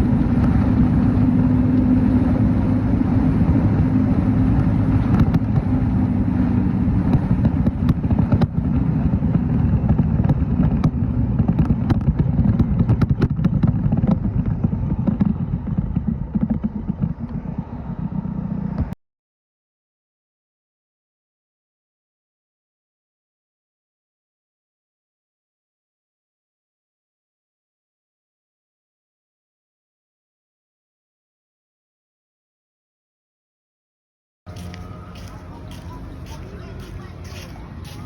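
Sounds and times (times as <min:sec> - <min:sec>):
motorcycle engine running: 0:00.0 - 0:19.0, 0:34.5 - 0:38.0.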